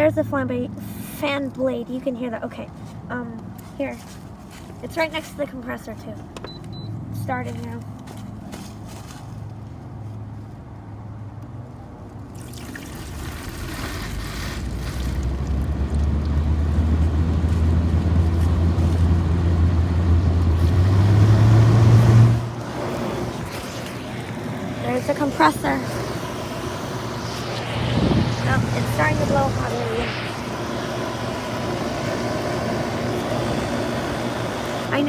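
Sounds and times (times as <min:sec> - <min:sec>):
air conditioner fan humming: 0:12.4 - 0:35.0.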